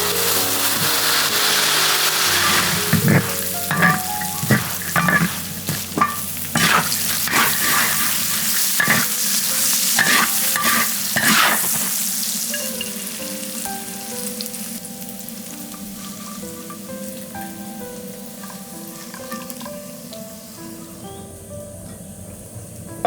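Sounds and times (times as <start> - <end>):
food sizzling in hot oil: 0.0 - 21.8
quick scraping in a pan: 2.2 - 12.0.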